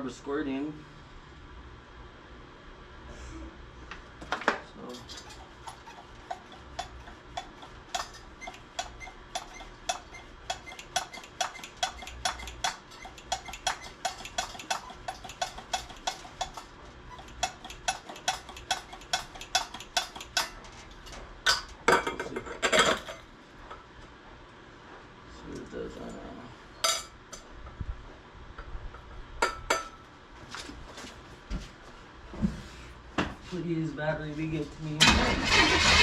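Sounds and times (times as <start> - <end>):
rasping bursts: 5.0 - 20.6
electric fuel pump ticking: 5.3 - 20.5.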